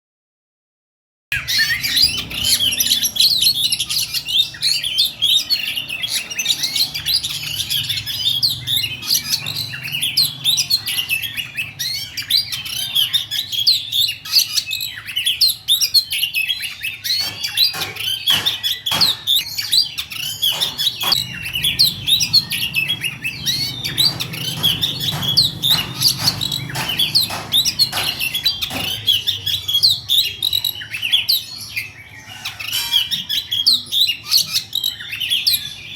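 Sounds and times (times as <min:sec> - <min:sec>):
songbird singing trills: 0:01.3 - 0:35.9
sharp clicks: 0:23.4 - 0:29.0.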